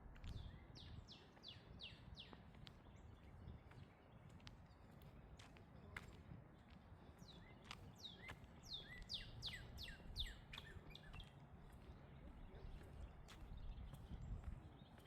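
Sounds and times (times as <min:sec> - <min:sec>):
low outdoor background noise: 0:00.0 - 0:15.0.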